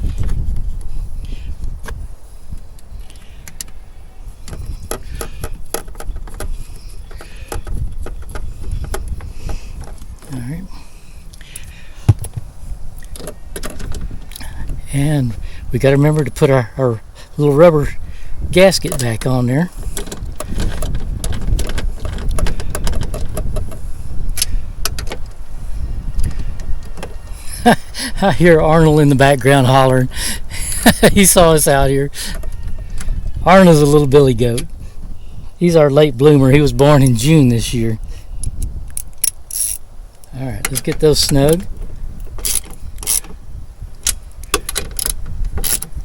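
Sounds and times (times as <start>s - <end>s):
light clicks and metallic rattles: 18.7s - 25.4s, 38.4s - 43.4s, 44.0s - 46.0s
metallic clicks of nuts: 38.4s - 41.6s, 42.4s - 43.4s, 44.0s - 46.0s.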